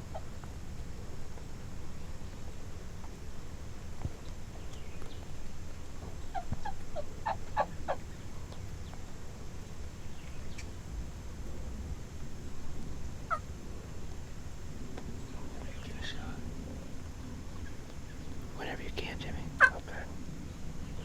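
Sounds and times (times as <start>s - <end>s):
turkey gobbling: 0.0s - 0.4s, 6.2s - 8.2s, 13.3s - 13.5s, 19.6s - 19.9s
low rumble of wind: 0.0s - 21.0s.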